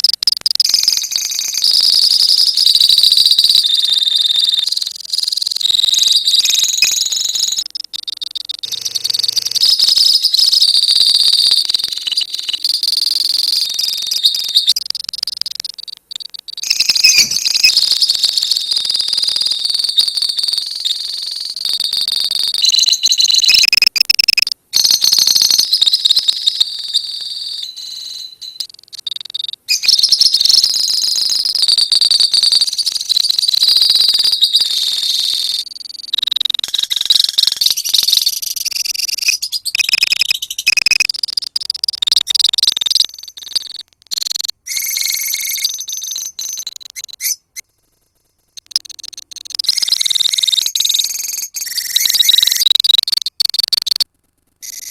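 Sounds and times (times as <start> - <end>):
lovebirds chirping and trilling: 15.6 - 21.6, 44.7 - 47.6.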